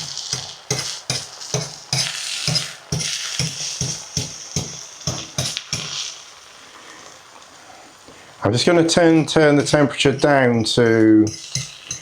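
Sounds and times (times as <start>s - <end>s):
utensil beating eggs in bowl: 10.2s - 12.0s.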